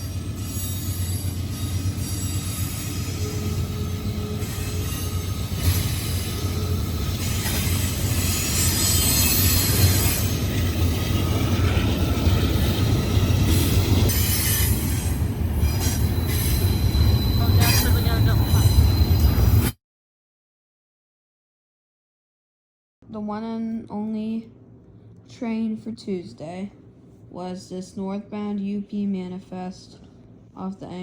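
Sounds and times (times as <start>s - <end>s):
freight train cars rumbling: 0.0s - 19.7s
high wheel squeal: 0.4s - 10.4s, 15.6s - 19.7s.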